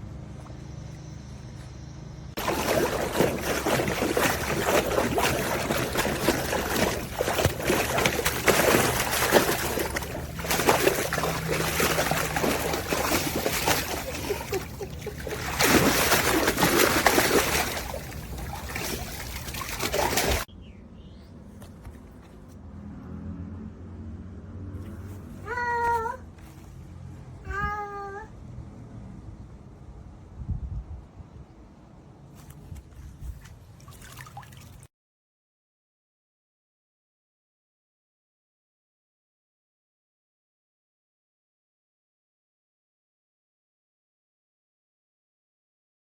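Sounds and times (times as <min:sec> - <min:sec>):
water splashing in plastic pool: 0:02.4 - 0:20.5, 0:32.4 - 0:34.9.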